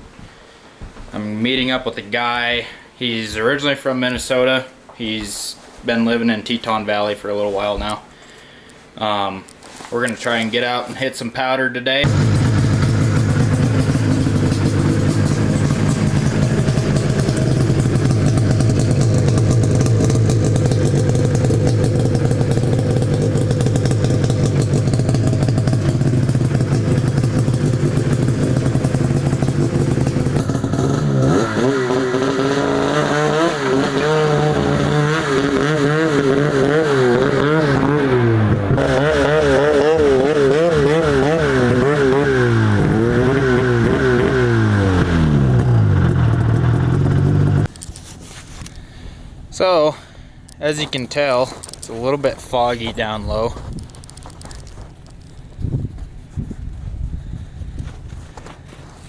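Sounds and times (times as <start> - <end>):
snowmobile engine running: 12.0 - 47.7.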